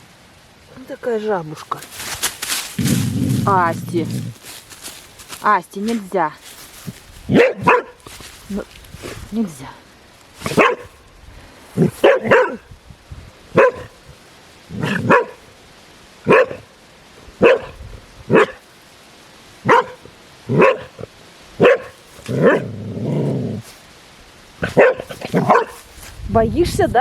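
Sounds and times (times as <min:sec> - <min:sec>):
dog barking: 0:07.3 - 0:08.0, 0:10.4 - 0:11.0, 0:11.8 - 0:12.7, 0:13.6 - 0:14.0, 0:14.8 - 0:15.4, 0:16.3 - 0:16.7, 0:17.4 - 0:18.6, 0:19.6 - 0:21.0, 0:21.6 - 0:22.7, 0:24.6 - 0:25.8
low growling dog bark: 0:07.3 - 0:08.0, 0:10.4 - 0:11.0, 0:11.8 - 0:12.7, 0:13.6 - 0:14.0, 0:14.7 - 0:15.5, 0:16.3 - 0:16.7, 0:17.4 - 0:18.6, 0:19.6 - 0:23.7, 0:24.6 - 0:25.8.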